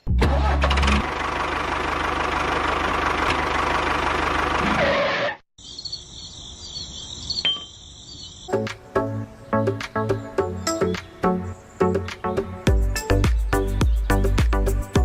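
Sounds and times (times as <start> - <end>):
high-pitched chirping: 5.6 - 8.6.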